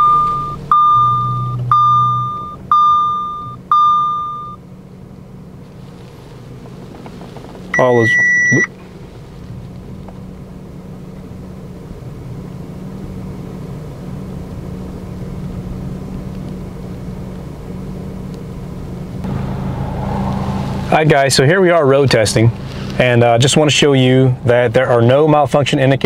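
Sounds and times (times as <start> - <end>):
short electronic beep: 0.0 - 4.6, 7.8 - 8.7
car engine idling: 0.0 - 25.6.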